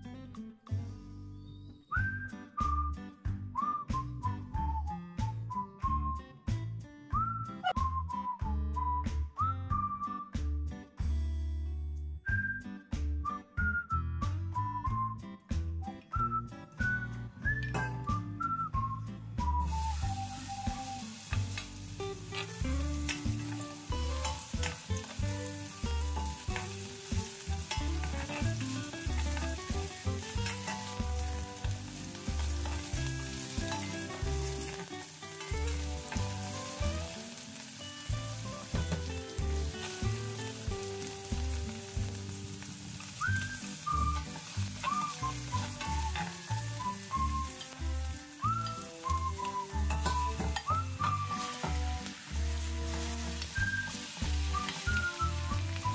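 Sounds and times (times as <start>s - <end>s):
background music with low beat: 0.0s - 11.5s, 12.2s - 34.7s
whistled notes: 1.3s - 6.4s, 7.2s - 10.5s, 12.2s - 21.1s, 43.2s - 47.6s, 48.4s - 51.6s, 53.4s - 55.9s
onions sizzling in hot oil: 19.5s - 55.9s.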